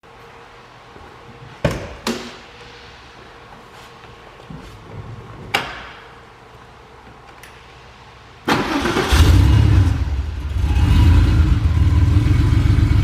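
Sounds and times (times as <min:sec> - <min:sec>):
faint steady hum: 0:00.0 - 0:08.5.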